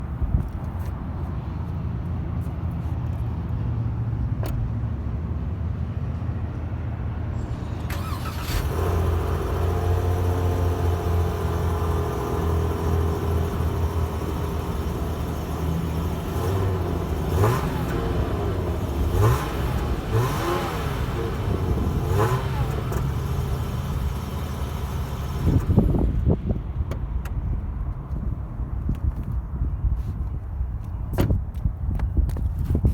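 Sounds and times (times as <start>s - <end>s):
car engine starting and idling: 7.4s - 28.6s
car engine revving: 7.9s - 25.9s.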